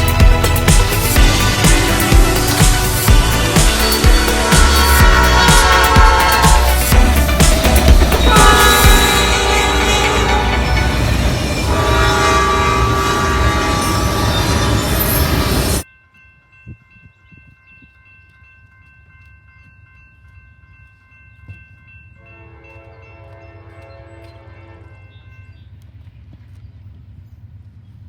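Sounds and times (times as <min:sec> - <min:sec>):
train horn sounding: 0:00.0 - 0:15.8, 0:22.2 - 0:25.1
train passing close: 0:00.0 - 0:15.9
faint steady high tones: 0:03.6 - 0:15.8.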